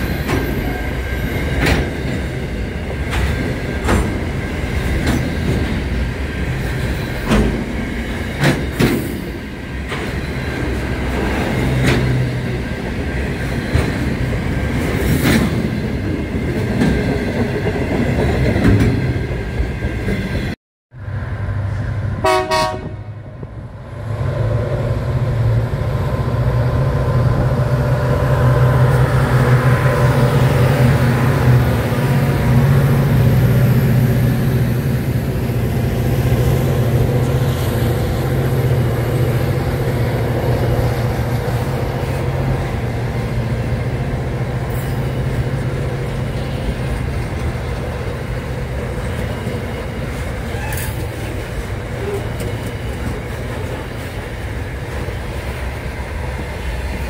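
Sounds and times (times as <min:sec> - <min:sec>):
diesel locomotive drone: 0:00.0 - 0:57.0.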